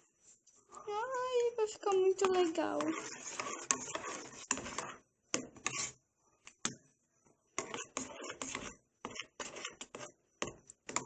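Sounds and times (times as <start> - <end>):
utensil scraping a pan: 1.8 - 6.0, 7.6 - 10.1.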